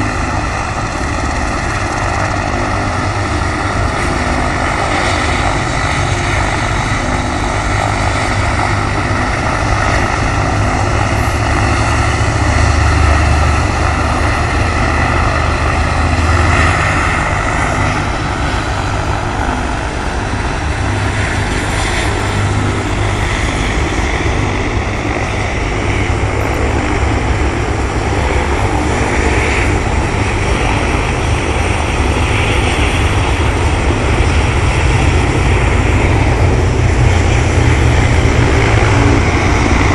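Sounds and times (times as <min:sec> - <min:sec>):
helicopter rotor and turbine: 0:00.0 - 0:39.9.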